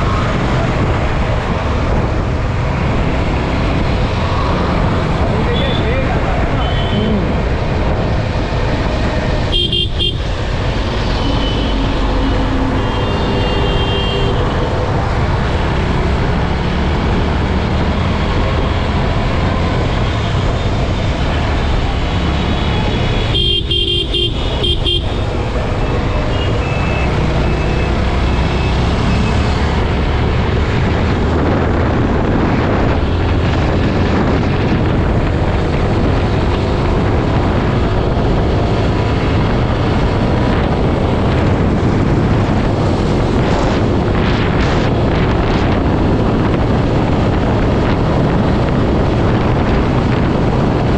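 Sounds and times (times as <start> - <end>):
motorcycle riding at speed: 0.0 - 50.9
wind noise: 0.0 - 50.9
vehicle horn toots: 9.5 - 10.2, 23.2 - 25.2.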